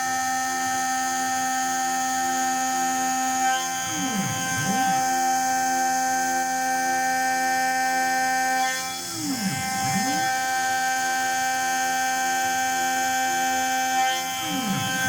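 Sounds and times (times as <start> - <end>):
milling machine motor whine: 0.0 - 15.0
motor whine dipping in pitch: 9.1 - 15.0.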